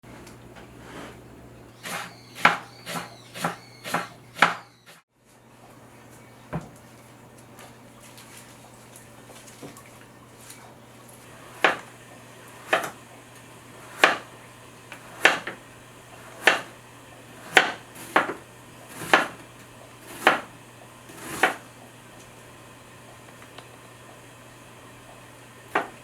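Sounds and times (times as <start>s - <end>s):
knife striking cutting board: 1.9s - 4.7s.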